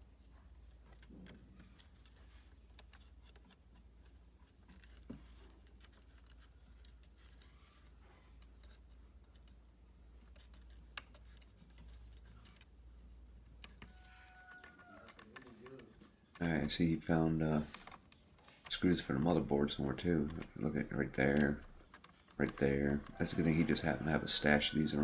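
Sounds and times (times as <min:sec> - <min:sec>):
clicks of laptop parts and screws: 0:00.7 - 0:09.6, 0:13.5 - 0:16.8, 0:21.2 - 0:23.4.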